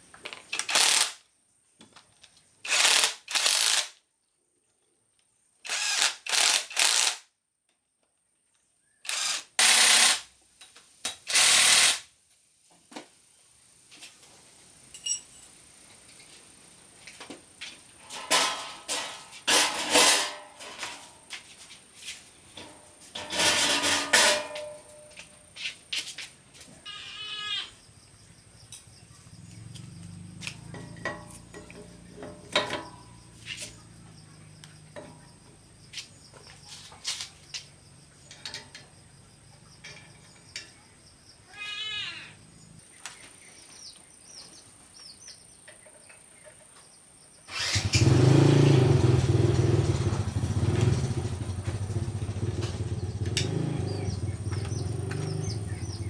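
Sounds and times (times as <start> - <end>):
hand tools clinking on metal: 14.9 - 15.6, 18.0 - 21.7, 22.4 - 26.2, 29.6 - 33.8, 36.7 - 39.0, 39.8 - 40.8, 52.5 - 55.4.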